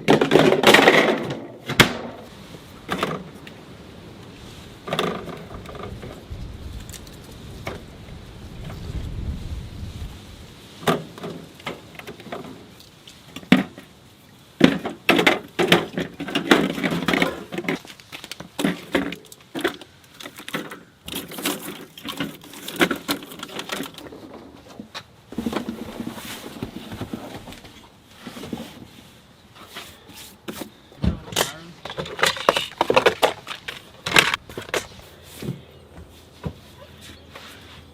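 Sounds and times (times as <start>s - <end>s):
rustling: 15.6s - 37.9s.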